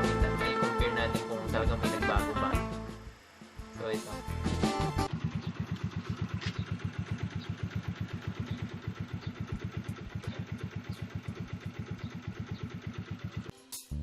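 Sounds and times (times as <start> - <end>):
scooter engine idling: 5.0 - 13.5.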